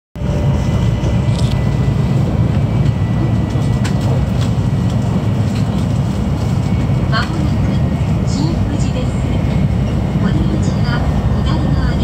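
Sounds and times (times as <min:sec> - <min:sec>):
train rumble from inside: 0:00.2 - 0:12.0.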